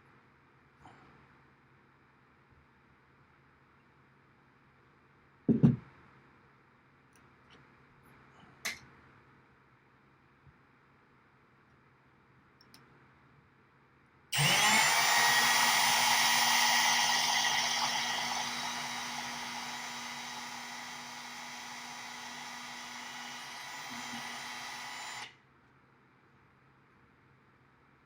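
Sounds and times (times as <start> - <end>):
power drill drilling into metal: 14.4 - 25.3.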